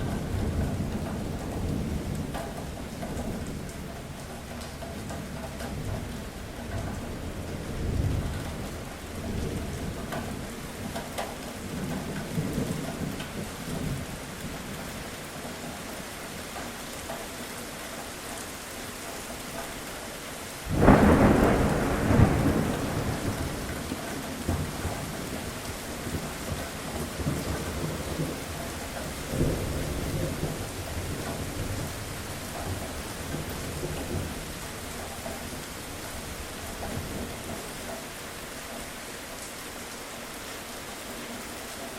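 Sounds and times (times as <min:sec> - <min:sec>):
steady rain: 0:00.0 - 0:41.9
sharp thunderclap: 0:20.7 - 0:25.0
rolling thunder: 0:20.7 - 0:28.4.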